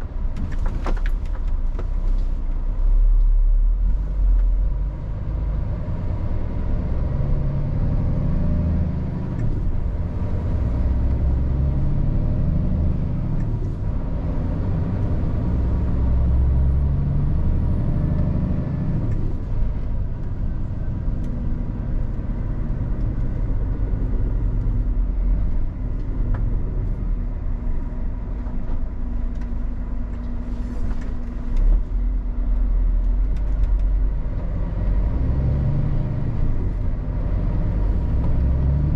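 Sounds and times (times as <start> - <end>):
truck diesel engine rumbling: 0.0 - 38.9.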